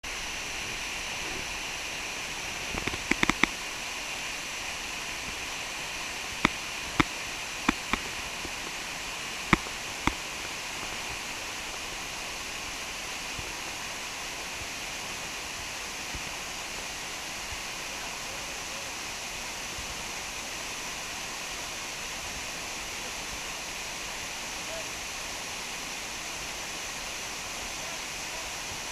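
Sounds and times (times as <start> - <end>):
waterfall rushing: 0.0 - 28.9
sharp clicks or knocks: 2.7 - 3.5.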